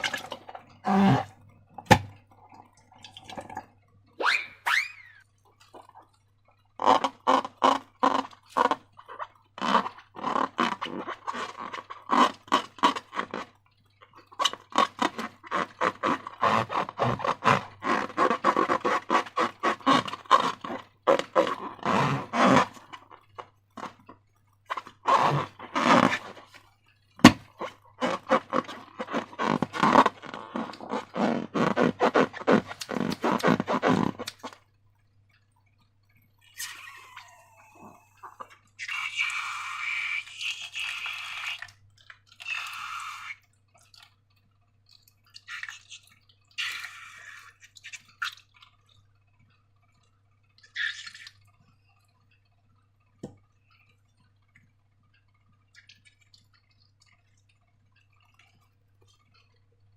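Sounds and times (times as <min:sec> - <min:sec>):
slime squelching and crackling: 0:05.5 - 0:34.6, 0:50.0 - 0:52.1.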